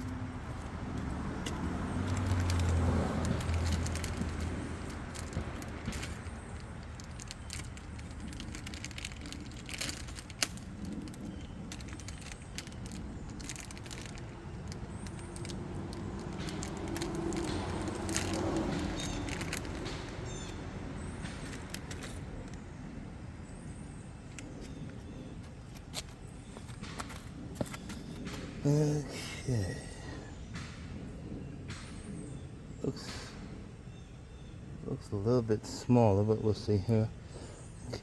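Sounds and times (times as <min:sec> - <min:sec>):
hands handling parts and tools: 0:01.4 - 0:20.6, 0:21.2 - 0:22.6, 0:24.3 - 0:28.5.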